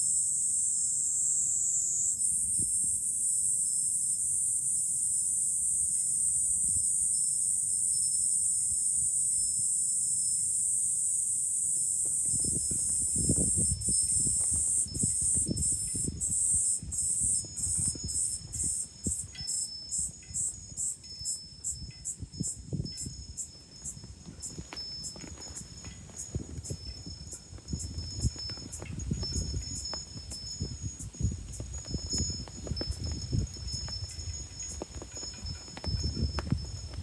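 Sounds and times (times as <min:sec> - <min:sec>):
cicadas buzzing: 0:00.0 - 0:37.0
wind rumbling on microphone: 0:11.7 - 0:37.0.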